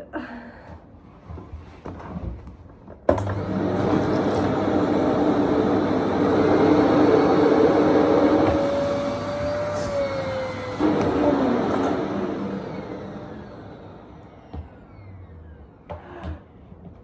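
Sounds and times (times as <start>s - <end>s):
vacuum cleaner running: 3.1s - 16.4s.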